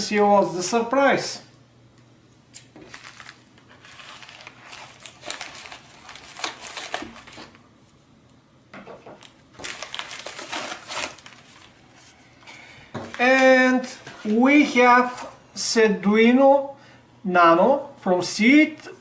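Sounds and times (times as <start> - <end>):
packaging crinkling: 2.6 - 7.7, 9.2 - 12.2.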